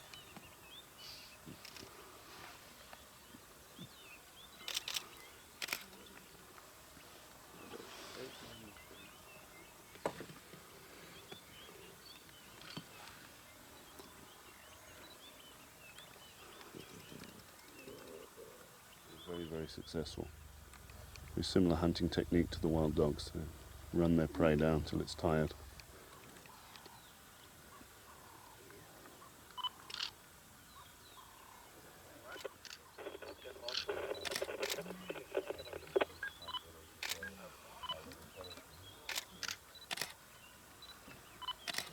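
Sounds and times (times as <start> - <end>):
small birds chirping: 0.0 - 41.9
soft clicks: 20.2 - 21.4.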